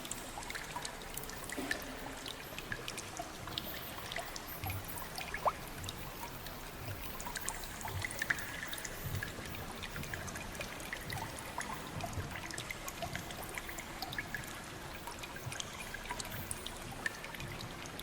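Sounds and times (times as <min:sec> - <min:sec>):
water trickling and dripping: 0:00.0 - 0:18.0.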